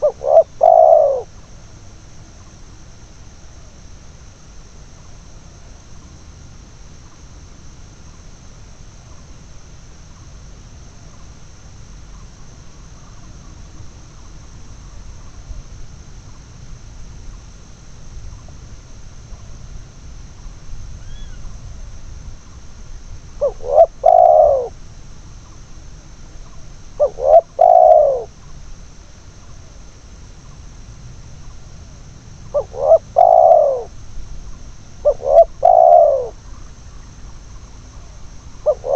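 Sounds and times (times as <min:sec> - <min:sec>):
dove cooing: 0:00.0 - 0:01.6, 0:23.4 - 0:24.9, 0:26.3 - 0:28.5, 0:32.4 - 0:38.9.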